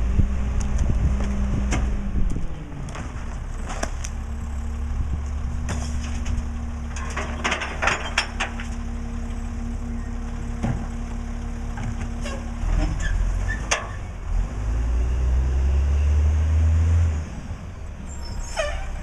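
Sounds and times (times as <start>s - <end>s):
diesel engine running: 0.0s - 16.0s
metallic clanks and knocks: 5.7s - 8.8s.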